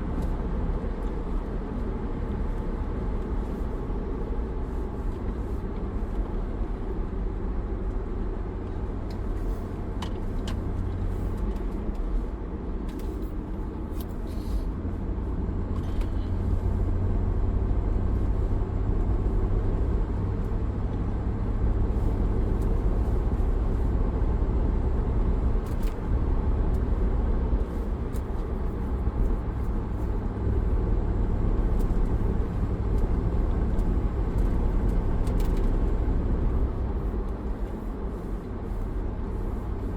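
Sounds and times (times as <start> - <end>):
car cabin road and engine rumble: 0.0 - 39.9.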